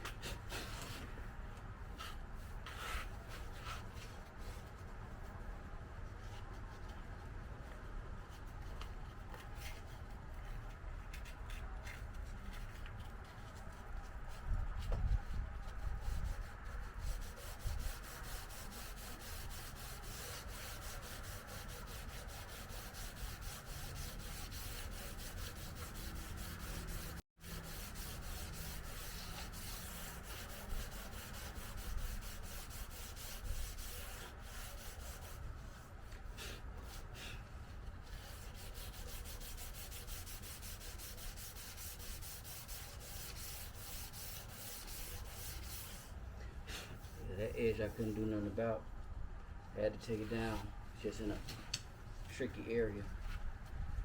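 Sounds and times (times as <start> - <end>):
sandpaper rubbing on car panel: 15.3 - 37.4, 38.0 - 46.1, 47.0 - 48.5.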